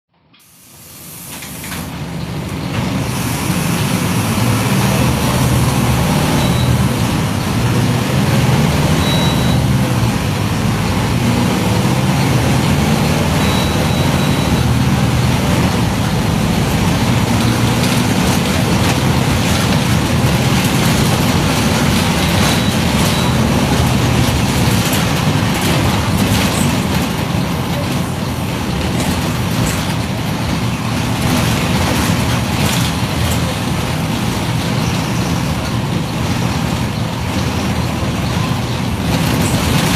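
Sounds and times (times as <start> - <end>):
bus diesel engine running: 0.2 - 39.9.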